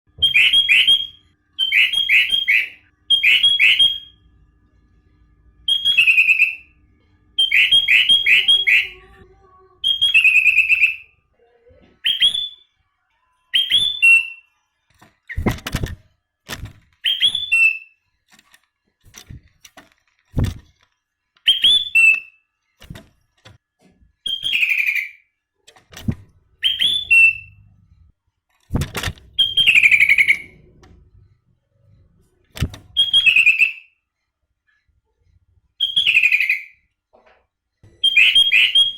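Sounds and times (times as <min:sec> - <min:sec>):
bird singing whistled phrases: 0:00.2 - 0:04.1, 0:05.7 - 0:06.7, 0:07.4 - 0:09.0, 0:09.8 - 0:11.2, 0:12.0 - 0:12.7, 0:13.5 - 0:14.5, 0:17.0 - 0:18.0, 0:21.4 - 0:22.4, 0:24.2 - 0:25.2, 0:26.6 - 0:27.6, 0:29.4 - 0:30.5, 0:32.9 - 0:34.0, 0:35.8 - 0:36.8, 0:38.0 - 0:38.9.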